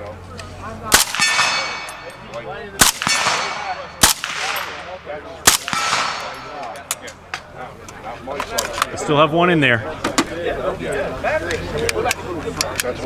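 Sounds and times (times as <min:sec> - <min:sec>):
fainter distant gunshots: 0:00.9 - 0:06.8
rifle gunshots echoing: 0:00.9 - 0:07.0.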